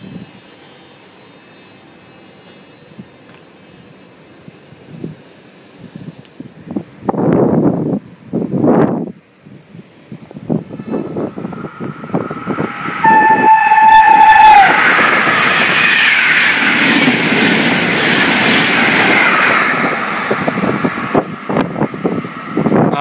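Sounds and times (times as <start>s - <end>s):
rush of train wheels and air: 0.0s - 23.0s
train horn: 10.7s - 16.2s.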